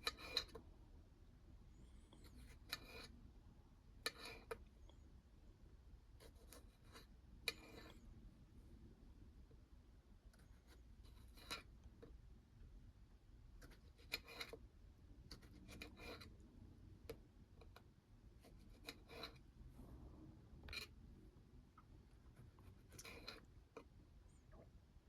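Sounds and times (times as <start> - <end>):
light scraping: 2.0 - 3.2, 10.4 - 11.7, 22.3 - 23.5.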